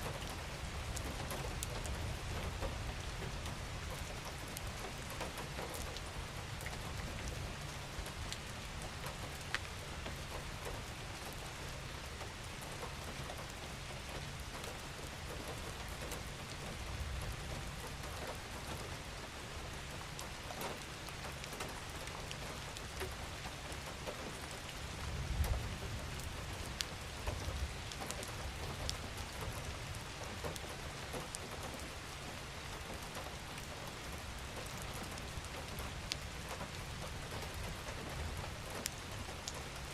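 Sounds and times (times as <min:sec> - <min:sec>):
steady rain hiss: 0:00.0 - 0:39.9
raindrops ticking: 0:12.1 - 0:39.9.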